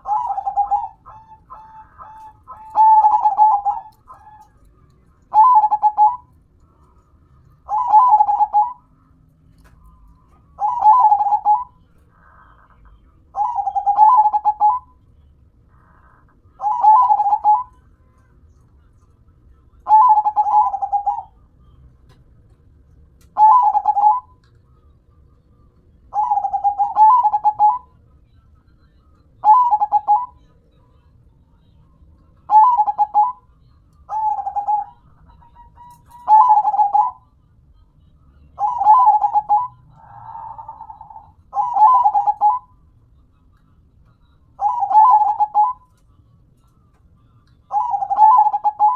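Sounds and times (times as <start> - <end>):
dove cooing: 0.0 - 4.7, 5.3 - 6.4, 7.6 - 8.9, 10.6 - 12.6, 13.3 - 14.9, 15.8 - 17.8, 19.9 - 21.4, 23.4 - 24.3, 26.1 - 27.9, 29.4 - 30.4, 32.5 - 33.4, 34.1 - 37.2, 38.6 - 42.7, 44.6 - 45.9, 47.7 - 48.9.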